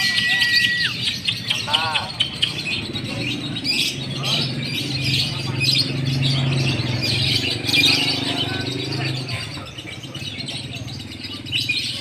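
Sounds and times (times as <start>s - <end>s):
lovebirds chattering and trilling: 0.0s - 12.0s.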